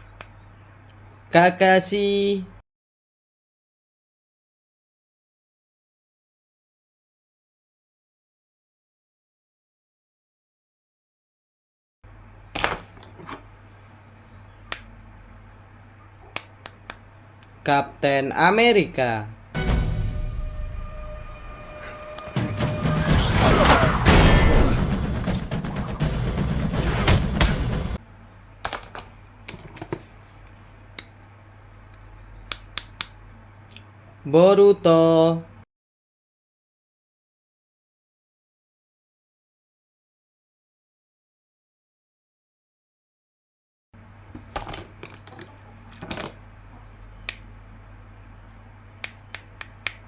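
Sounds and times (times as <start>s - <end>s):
low electrical hum: 0.0s - 2.6s, 12.1s - 19.6s, 28.0s - 35.7s, 44.0s - 50.0s
loud music with booms: 22.2s - 28.0s.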